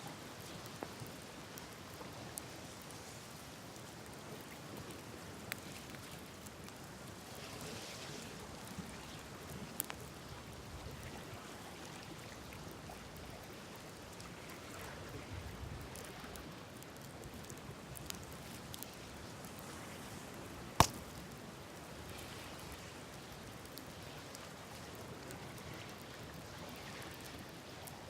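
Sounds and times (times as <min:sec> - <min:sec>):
campfire hissing and crackling: 0:00.0 - 0:28.0
sharp loud pop: 0:20.8 - 0:21.0.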